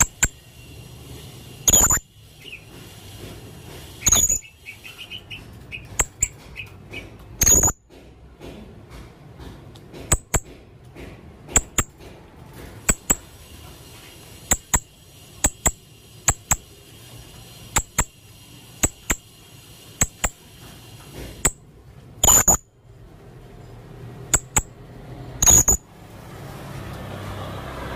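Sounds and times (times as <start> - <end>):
parrot high-pitched calls: 1.6 - 2.7, 4.0 - 7.8, 25.4 - 25.8.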